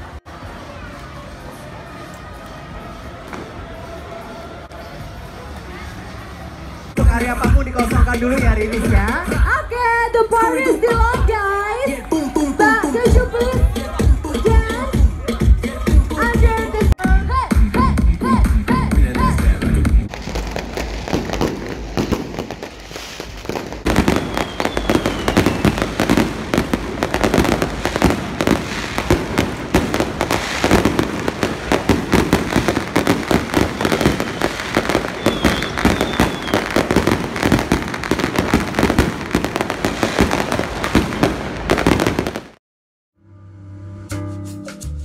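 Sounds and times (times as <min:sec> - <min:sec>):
fireworks popping and crackling: 0:20.1 - 0:42.6.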